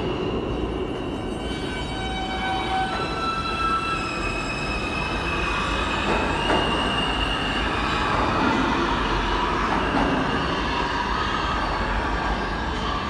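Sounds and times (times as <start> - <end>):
subway train rumbling on rails: 0.0 - 13.0
high thin wheel squeal: 1.0 - 8.4.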